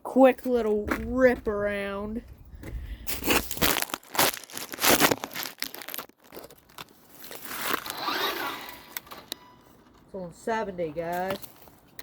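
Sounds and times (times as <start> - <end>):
rc car crunching over ground: 3.1 - 9.3.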